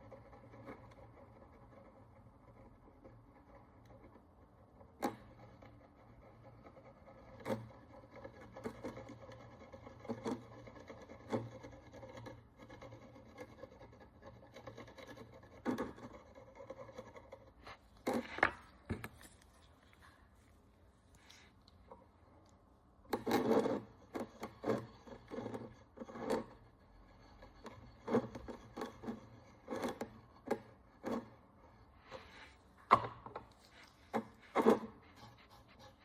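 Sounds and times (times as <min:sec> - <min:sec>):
hand tool scraping coin: 0:23.1 - 0:32.6, 0:33.5 - 0:36.0.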